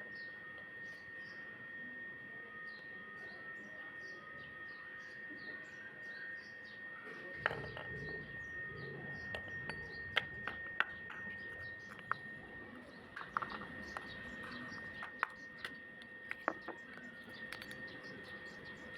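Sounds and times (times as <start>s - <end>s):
clay pot crunching and cracking: 9.3s - 18.9s.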